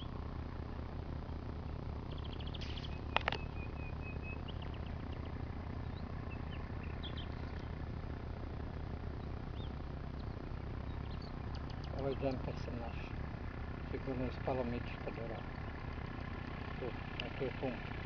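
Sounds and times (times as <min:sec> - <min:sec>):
low hum: 0:00.0 - 0:18.0
small birds chirping: 0:00.0 - 0:18.0
sharp clicks: 0:02.1 - 0:03.6, 0:11.3 - 0:12.4.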